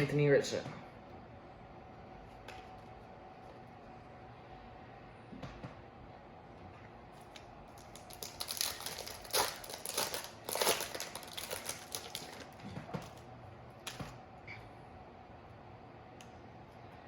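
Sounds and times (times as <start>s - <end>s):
trading cards rustling and clicking: 7.2s - 13.2s.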